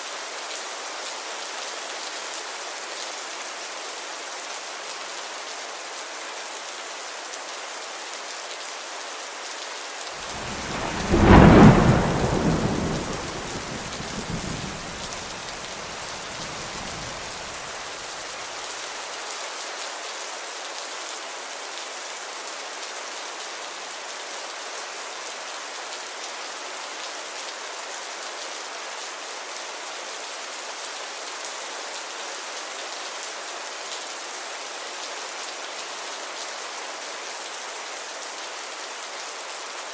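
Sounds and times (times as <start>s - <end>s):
steady rainfall: 0.0s - 39.9s
thunder clap and rumble: 10.3s - 17.6s.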